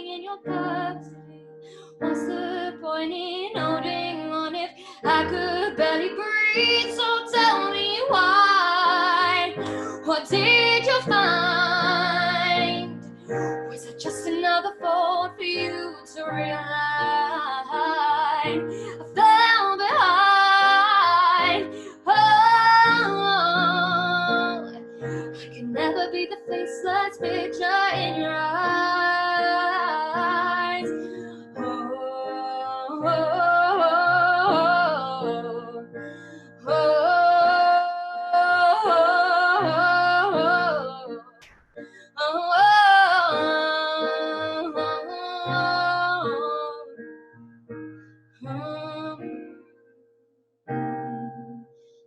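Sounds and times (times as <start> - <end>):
person singing: 1.9 - 36.0, 50.8 - 51.7.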